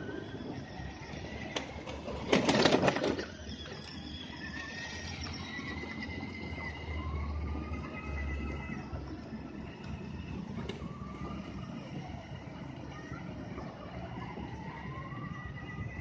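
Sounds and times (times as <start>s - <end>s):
vehicle engine running low: 3.2s - 16.0s.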